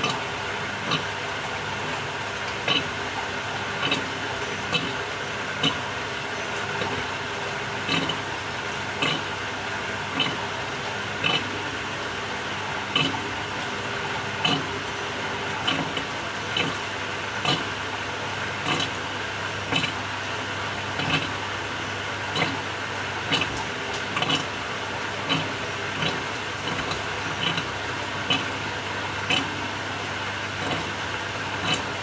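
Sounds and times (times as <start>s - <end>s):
washing machine churning whir: 0.0s - 32.0s
washing machine knocking: 23.3s - 24.5s, 30.6s - 32.0s.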